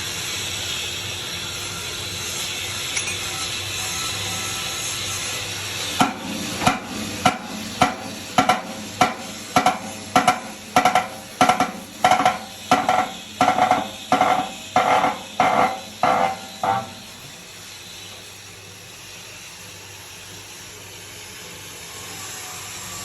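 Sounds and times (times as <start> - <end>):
hammer blows on metal: 6.0 - 17.3
steady hiss: 6.0 - 21.0.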